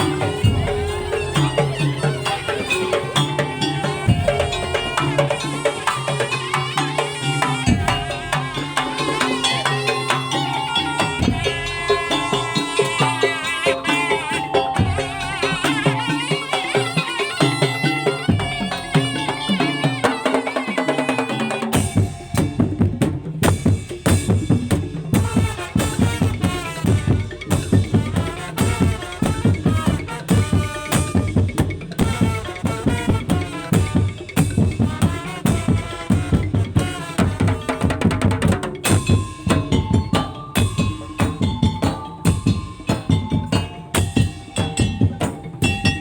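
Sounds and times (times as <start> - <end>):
sustained melody: 0.0 - 19.7, 21.4 - 23.4
drums and percussion beat: 0.0 - 46.0.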